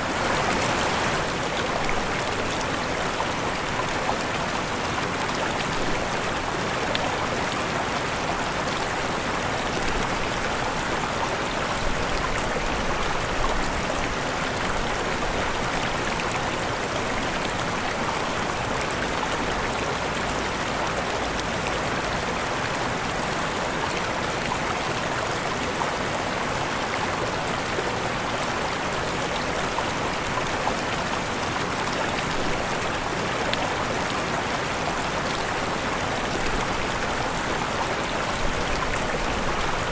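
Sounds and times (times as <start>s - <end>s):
waterfall rushing: 0.0s - 20.2s.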